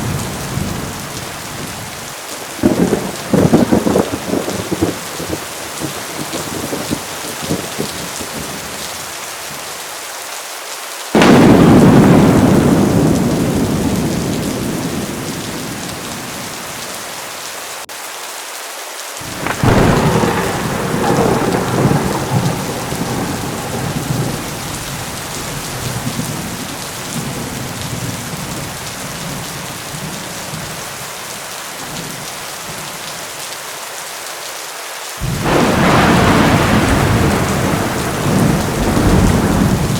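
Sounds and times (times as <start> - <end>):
thunder rumbling: 0.0 - 8.8, 11.2 - 17.0, 19.2 - 30.8, 35.2 - 39.9
heavy rain pouring: 0.0 - 39.9.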